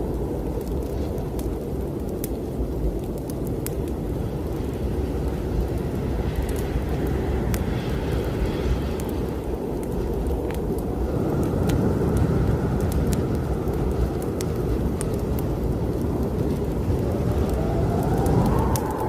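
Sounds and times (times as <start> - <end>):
wood fire crackling: 0.0 - 19.0
strong wind rushing: 3.4 - 19.0
wind gust whistling: 3.8 - 19.0.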